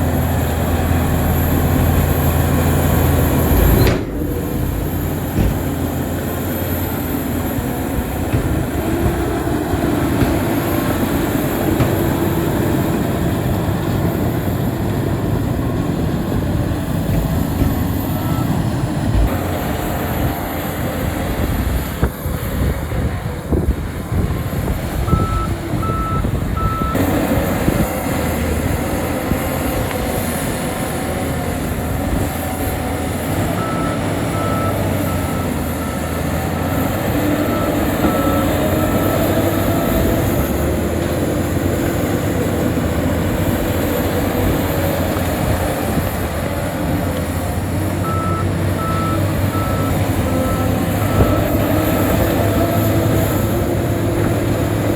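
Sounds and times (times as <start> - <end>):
heavy diesel engine running: 0.0 - 54.9
reversing alarm beeping: 17.0 - 19.3, 25.1 - 27.0, 33.3 - 40.8, 48.0 - 53.3.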